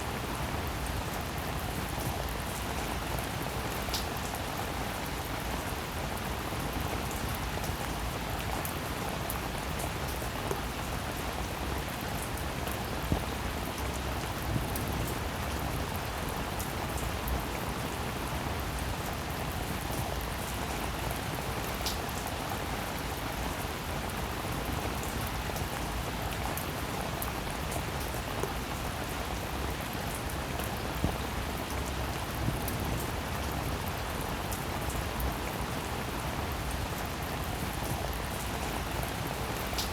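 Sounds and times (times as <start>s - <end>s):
steady rain falling: 0.0s - 39.9s
raindrops clicking close by: 3.8s - 4.5s, 37.8s - 39.9s.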